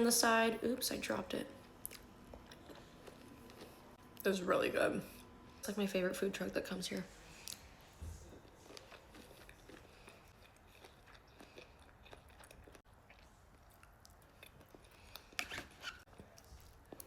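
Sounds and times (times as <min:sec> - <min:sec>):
person chewing: 0:01.6 - 0:04.0, 0:08.3 - 0:17.0.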